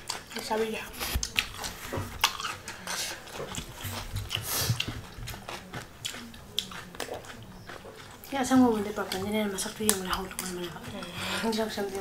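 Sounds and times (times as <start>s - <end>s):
wet mouth sounds: 0.0s - 11.6s
crunching raw cucumber: 3.3s - 11.0s.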